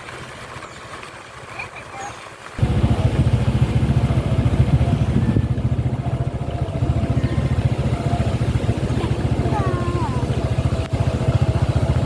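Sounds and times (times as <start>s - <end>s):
motorcycle engine running: 2.6s - 12.0s.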